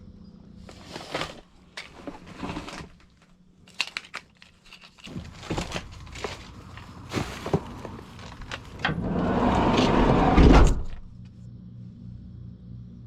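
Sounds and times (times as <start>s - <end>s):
low steady hum: 0.0s - 13.0s
packaging rustling and crinkling: 0.6s - 8.8s.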